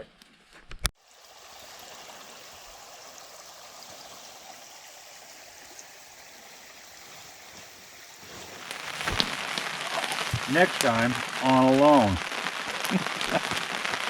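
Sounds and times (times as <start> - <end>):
stream water rushing: 6.8 - 10.0.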